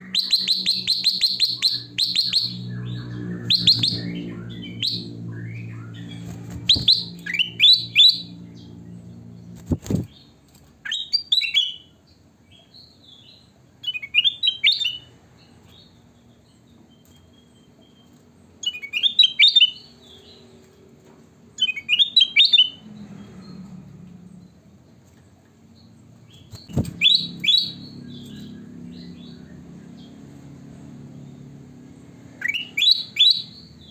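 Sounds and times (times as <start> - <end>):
low hum: 0.0 - 10.1
bulbul chirping song: 0.0 - 20.5, 21.6 - 22.9, 25.8 - 30.3, 32.1 - 33.9.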